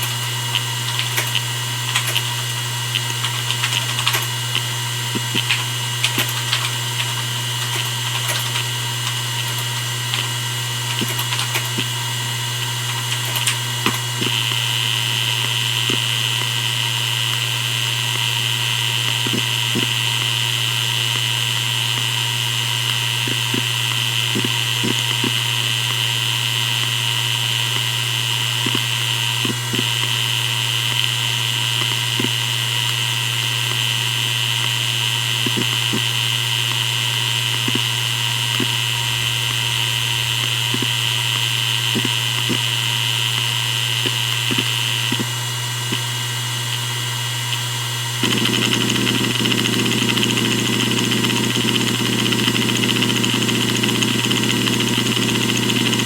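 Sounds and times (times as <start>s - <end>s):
hard drive head seek ticks: 0.0s - 12.0s, 40.6s - 41.0s, 44.0s - 45.3s, 48.2s - 56.0s
hard drive humming and whining: 0.0s - 56.0s.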